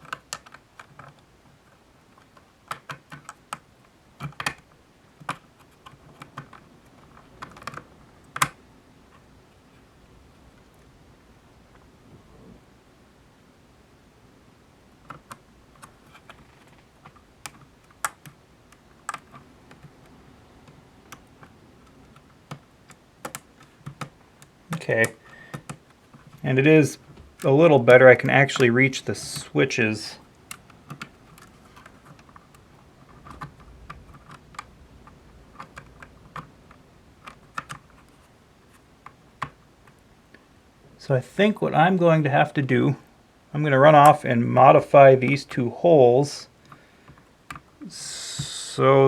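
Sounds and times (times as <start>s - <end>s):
plastic parts clicking and tapping: 0.0s - 9.3s, 14.9s - 29.6s, 30.2s - 40.5s, 46.5s - 47.8s.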